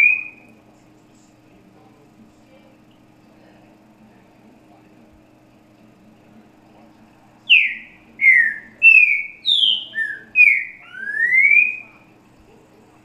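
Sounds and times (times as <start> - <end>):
bird singing whistled notes: 0.0 - 0.5, 7.5 - 12.0.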